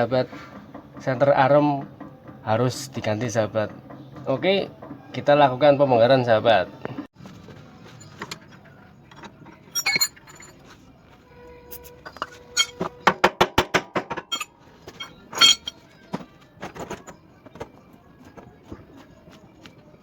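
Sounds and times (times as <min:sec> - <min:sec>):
metal tools clinking: 0:09.1 - 0:10.7, 0:11.7 - 0:13.0, 0:14.3 - 0:15.9.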